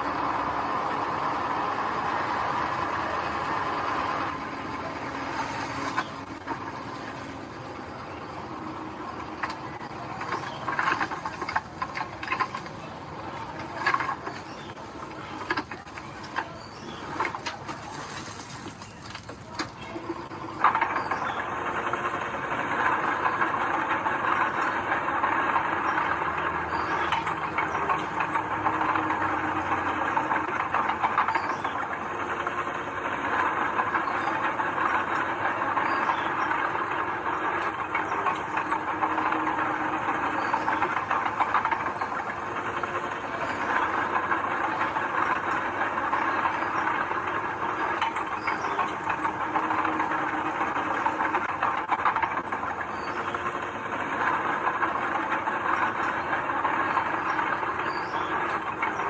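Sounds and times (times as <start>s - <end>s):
bulldozer engine running: 0.0s - 59.0s
metallic rattle and clatter: 0.0s - 59.0s.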